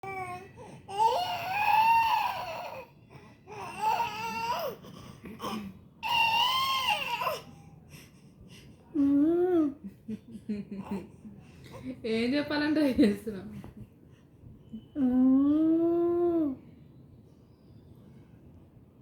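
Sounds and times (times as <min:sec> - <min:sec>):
baby wailing: 0:00.0 - 0:02.9, 0:03.5 - 0:04.8, 0:05.4 - 0:07.4.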